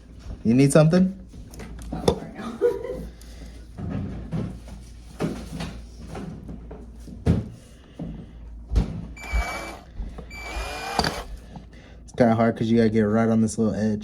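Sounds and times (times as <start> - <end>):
short high-pitched whirs: 9.2 - 11.3.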